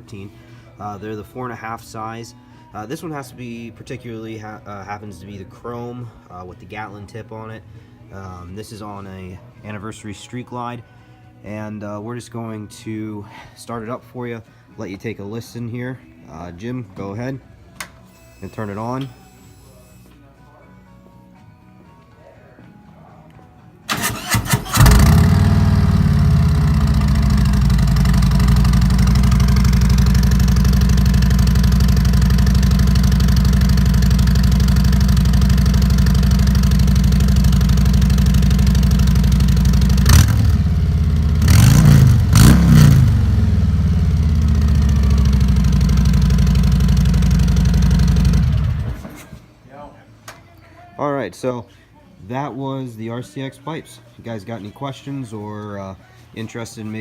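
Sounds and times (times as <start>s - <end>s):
starter cranking: 23.9s - 35.3s
motorcycle engine revving: 23.9s - 49.3s
motorcycle engine idling: 24.2s - 49.1s.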